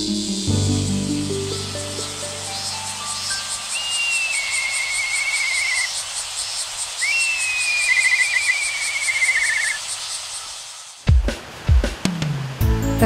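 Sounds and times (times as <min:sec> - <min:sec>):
insect pulsing buzz: 0:00.0 - 0:11.1
songbird trilling: 0:01.5 - 0:10.9.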